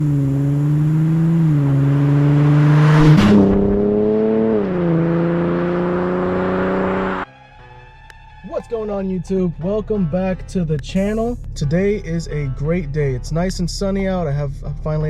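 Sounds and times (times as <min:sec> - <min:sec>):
car engine exhaust: 0:00.0 - 0:07.3.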